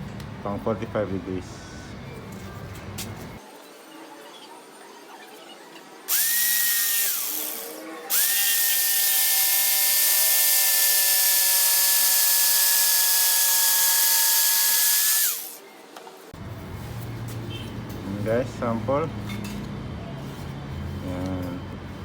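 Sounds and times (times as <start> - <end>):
electric jigsaw cutting wood: 6.1 - 15.6.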